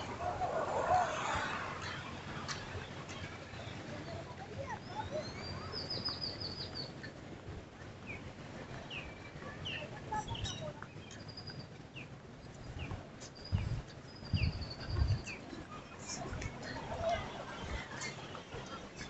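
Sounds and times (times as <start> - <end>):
birds chirping: 0.0 - 7.1, 8.0 - 19.0.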